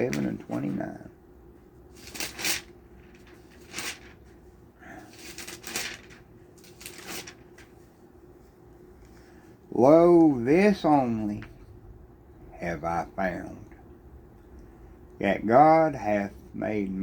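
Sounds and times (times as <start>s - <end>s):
faint steady hum: 0.0s - 17.0s
pages turning: 2.0s - 4.4s, 5.0s - 7.8s.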